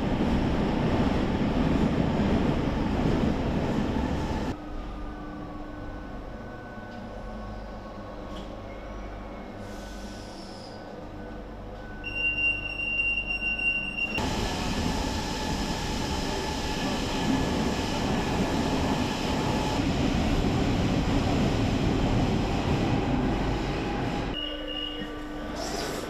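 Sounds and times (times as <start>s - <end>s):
subway train wheels rumbling on rail: 0.0s - 26.0s
single steady high tone: 11.8s - 14.2s, 24.4s - 25.5s.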